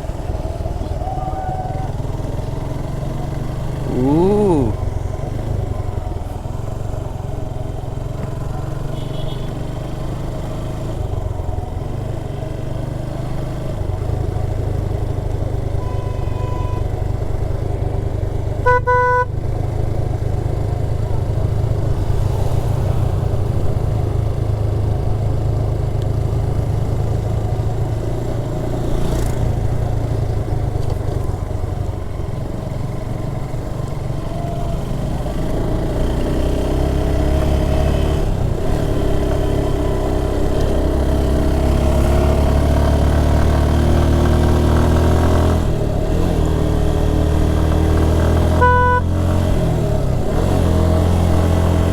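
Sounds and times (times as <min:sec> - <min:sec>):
vehicle horn beep: 0:08.9 - 0:09.7, 0:15.7 - 0:17.1, 0:18.6 - 0:19.5, 0:48.5 - 0:49.2.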